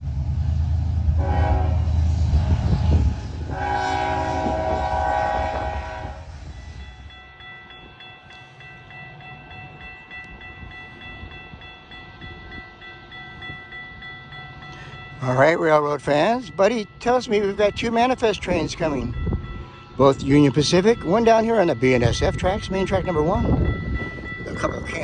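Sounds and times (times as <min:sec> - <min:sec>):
diesel locomotives rumbling: 0:00.0 - 0:25.0
train air horn blasts: 0:01.1 - 0:06.5
crossing bell ringing: 0:06.5 - 0:25.0.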